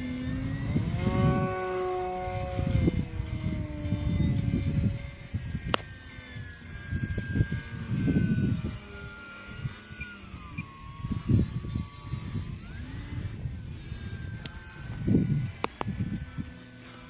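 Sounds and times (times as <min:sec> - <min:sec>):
model airplane motor whining: 0:00.0 - 0:17.0.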